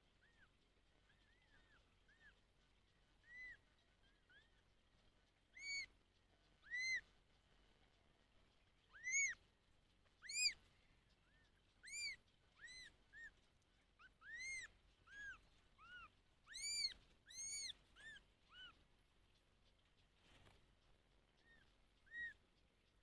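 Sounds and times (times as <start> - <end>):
young animal calling: 3.2 - 3.6, 5.6 - 6.0, 6.6 - 7.0, 8.8 - 9.5, 10.2 - 18.8, 21.4 - 22.4.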